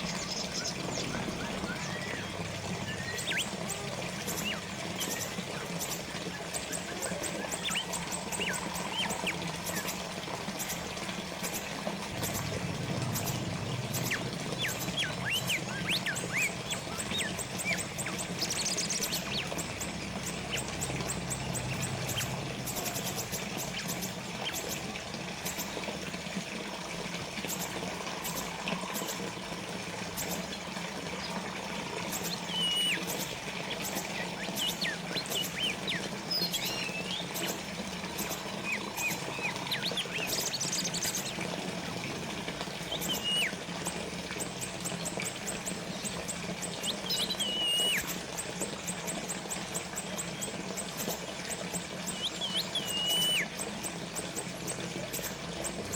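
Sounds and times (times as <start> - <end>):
water trickling and splashing: 0.0 - 55.9
bird chirping: 32.1 - 41.3, 46.8 - 48.1, 52.1 - 53.5.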